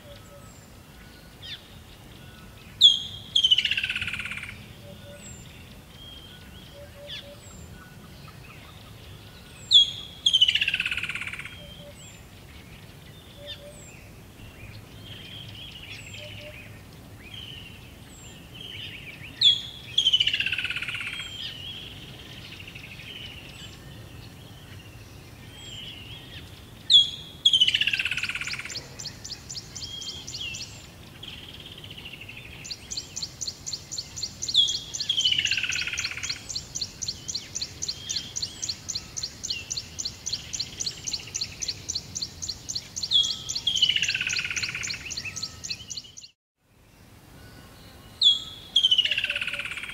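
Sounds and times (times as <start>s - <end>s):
soft high bird chirps: 25.7s - 46.4s.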